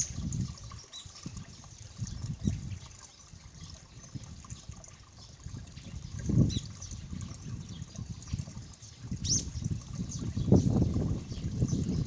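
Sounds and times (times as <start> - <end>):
brook babbling over stones: 0.0 - 12.0.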